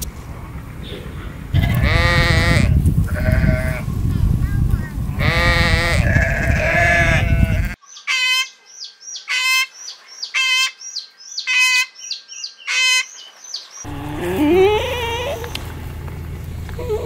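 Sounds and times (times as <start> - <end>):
sheep bleating: 1.6 - 3.9, 5.2 - 7.8
small birds chirping: 3.2 - 17.0
peafowl honking calls: 5.2 - 17.0
low rumble: 13.9 - 17.0.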